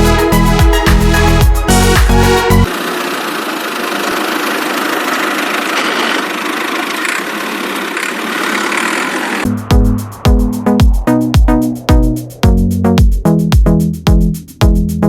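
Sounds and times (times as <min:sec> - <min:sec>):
music: 0:00.0 - 0:02.7, 0:09.5 - 0:15.0
small motor buzzing: 0:02.7 - 0:09.5.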